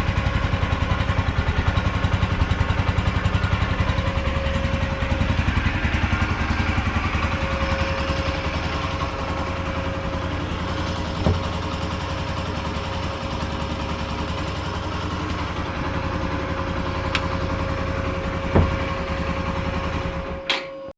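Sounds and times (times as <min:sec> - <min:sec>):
motorcycle engine idling: 0:00.0 - 0:20.5.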